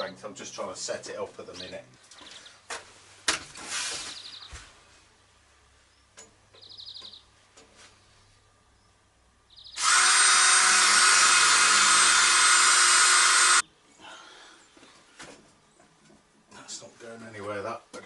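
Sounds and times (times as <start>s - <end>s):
power drill running: 9.8s - 13.6s.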